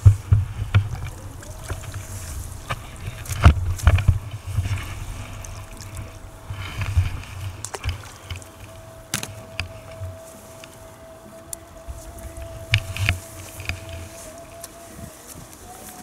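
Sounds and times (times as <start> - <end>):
faint steady whine: 0.0 - 16.0
wind rumble on microphone: 0.0 - 16.0.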